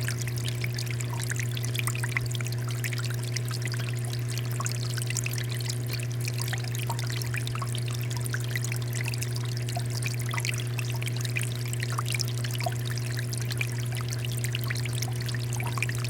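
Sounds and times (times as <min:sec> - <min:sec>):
steady low hum: 0:00.0 - 0:16.0
water fountain pouring and splashing: 0:00.0 - 0:16.0.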